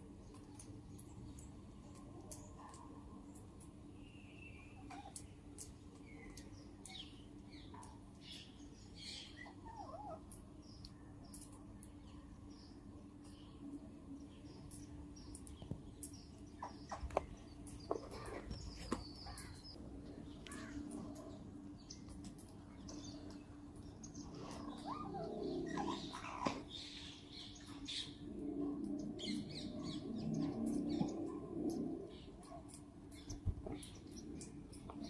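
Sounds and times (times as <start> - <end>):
parrots chirping and calling: 9.3 - 10.3, 24.3 - 28.2.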